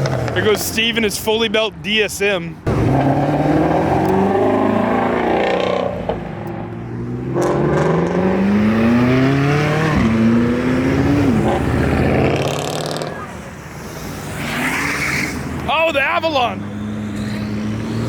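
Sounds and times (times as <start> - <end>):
car engine accelerating hard: 2.7 - 15.6, 16.6 - 18.0.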